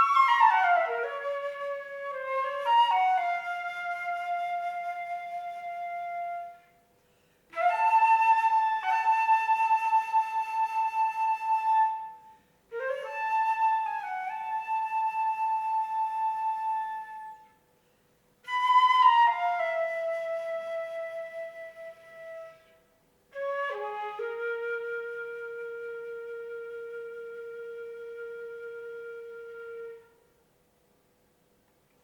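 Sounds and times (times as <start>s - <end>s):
solo flute playing: 0.0s - 17.7s, 18.4s - 30.4s.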